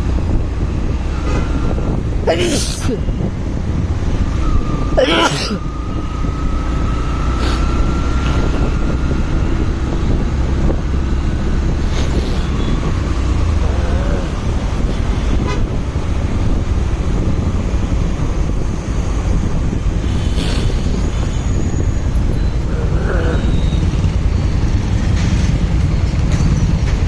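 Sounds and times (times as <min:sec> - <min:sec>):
road and traffic noise: 0:00.0 - 0:27.0
wind rumble: 0:00.0 - 0:27.0.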